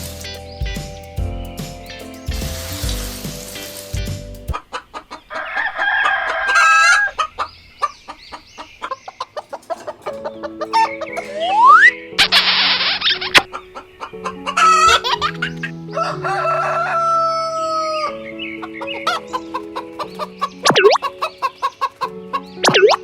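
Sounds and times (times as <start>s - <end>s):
music: 0.0s - 4.6s, 9.5s - 23.0s
hiss: 2.3s - 3.9s
chickens clucking: 4.5s - 23.0s
rooster crowing: 5.3s - 7.2s, 15.9s - 18.1s.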